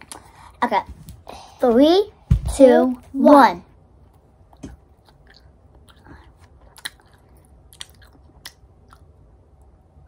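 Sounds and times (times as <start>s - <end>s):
quiet candy chewing: 4.0s - 9.8s
soft mouth clicks: 4.6s - 9.1s.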